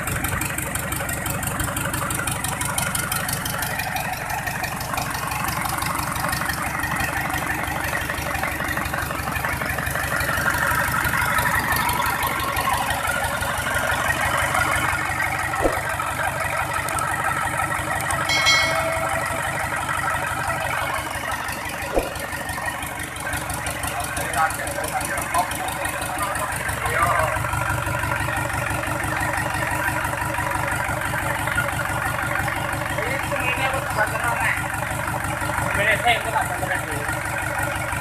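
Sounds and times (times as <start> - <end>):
diesel engine idling: 0.0 - 38.0
metallic ring: 18.3 - 20.7.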